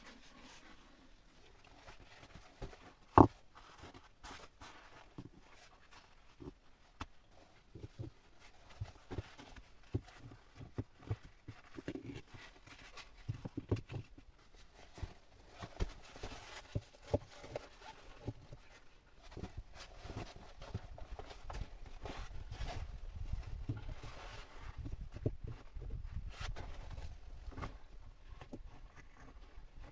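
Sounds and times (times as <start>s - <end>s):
faint rustling: 0.0s - 29.9s.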